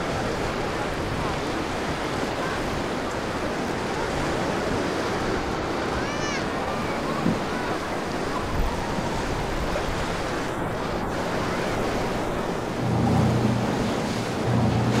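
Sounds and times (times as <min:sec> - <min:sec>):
waves washing: 0:00.0 - 0:15.0
wind buffeting microphone: 0:00.0 - 0:15.0
boat engine drone: 0:00.1 - 0:15.0.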